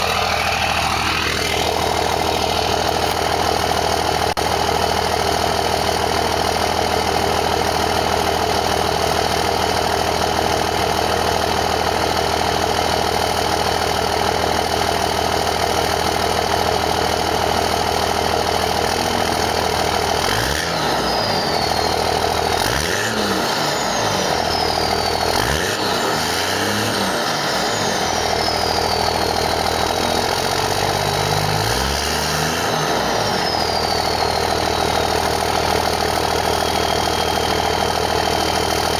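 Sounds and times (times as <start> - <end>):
engine revving: 0.0 - 4.4, 17.6 - 38.9
diesel truck engine idling: 0.0 - 38.9
turbo whistle: 18.8 - 30.7, 32.2 - 38.9.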